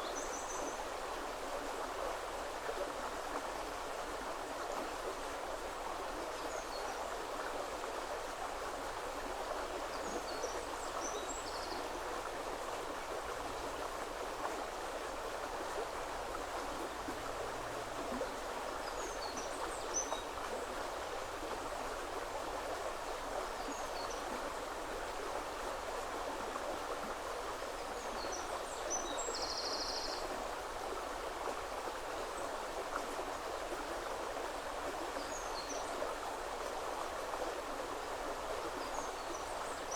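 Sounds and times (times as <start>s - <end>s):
river water rushing: 10.7s - 28.0s.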